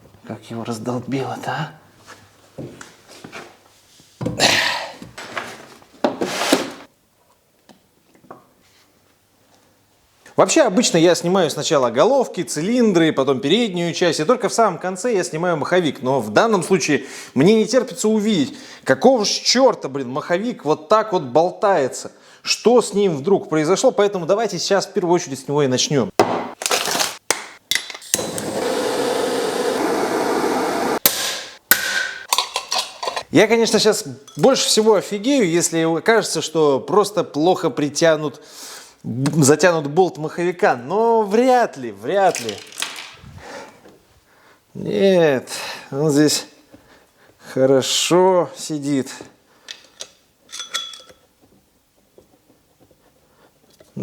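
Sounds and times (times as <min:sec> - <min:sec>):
metal hand tools clanking: 0:31.0 - 0:33.3.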